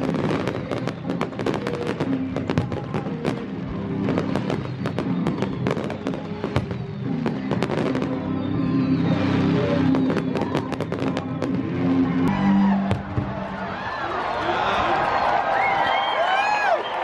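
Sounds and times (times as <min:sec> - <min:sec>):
fireworks bangs and crackles: 0:00.0 - 0:13.5
music playing: 0:00.0 - 0:14.4.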